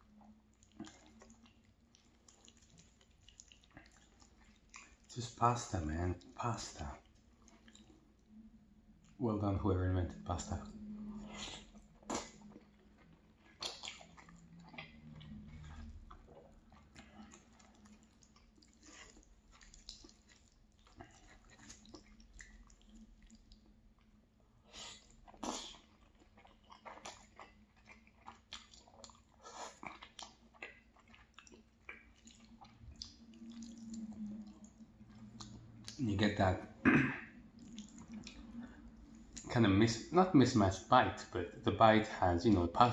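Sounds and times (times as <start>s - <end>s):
faint chewing: 0.0s - 9.2s, 10.4s - 39.7s
wet mouth clicks and smacks: 12.0s - 12.5s, 13.5s - 15.7s, 31.4s - 36.0s.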